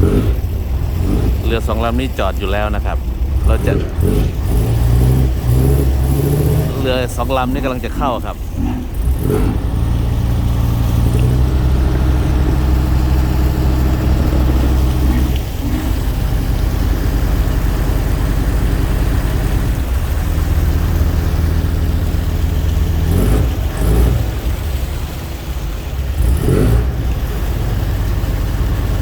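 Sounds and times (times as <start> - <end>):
tugboat engine droning: 0.0 - 29.0.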